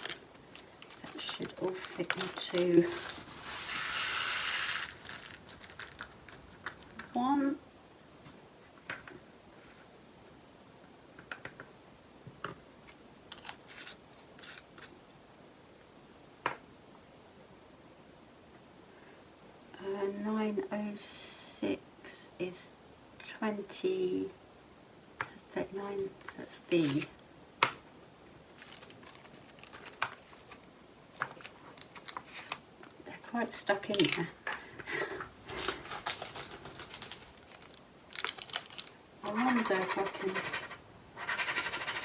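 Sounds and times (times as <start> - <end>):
plastic bags rustling: 0.0 - 7.2, 28.5 - 32.6, 35.1 - 39.5.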